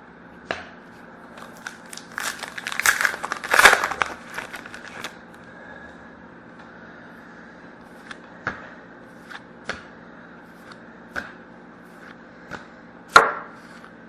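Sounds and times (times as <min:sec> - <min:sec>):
plastic packaging crinkling: 0:01.4 - 0:05.2.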